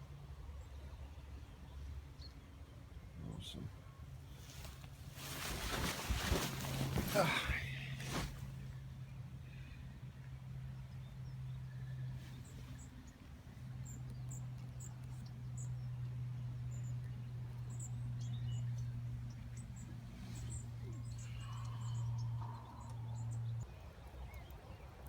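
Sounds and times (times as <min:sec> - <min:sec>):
steady low hum: 0:03.2 - 0:23.7
small birds chirping: 0:10.8 - 0:25.0.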